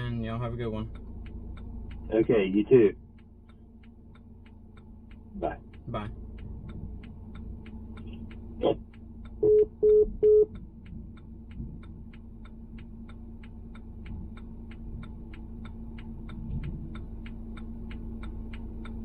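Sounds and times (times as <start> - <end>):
fast even ticking: 0.0 - 19.0
low hum: 0.0 - 19.0
phone beeps: 9.4 - 10.5.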